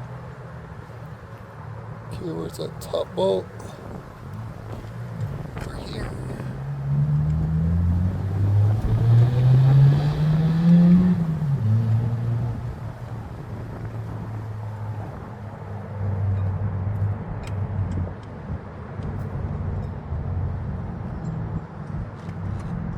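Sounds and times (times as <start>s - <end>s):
vehicle engine running: 2.1s - 15.1s.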